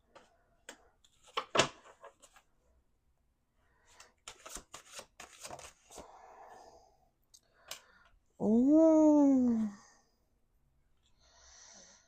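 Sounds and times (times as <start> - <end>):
cards being shuffled: 1.0 - 2.4, 3.9 - 6.0.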